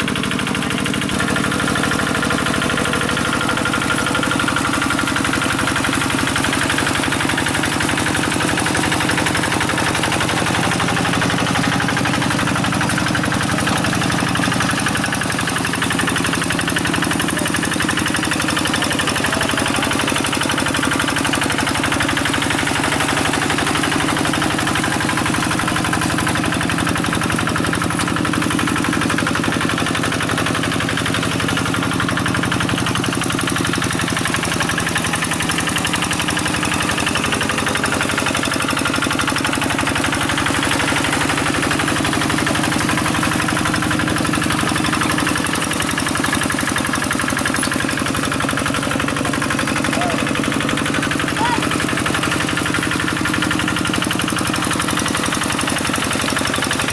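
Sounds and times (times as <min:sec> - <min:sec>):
diesel engine knocking steadily: 0:00.0 - 0:56.9.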